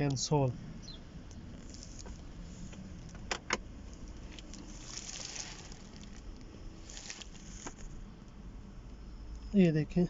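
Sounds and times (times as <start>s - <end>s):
soft rustle: 1.4s - 3.1s, 3.8s - 8.1s.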